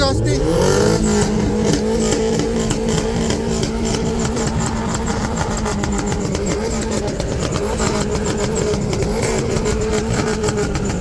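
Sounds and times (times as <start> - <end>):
car engines running: 0.0 - 11.0.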